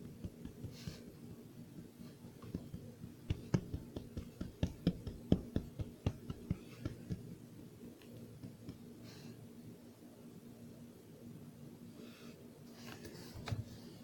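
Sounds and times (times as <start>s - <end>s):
light taps and clicks: 2.4s - 7.3s.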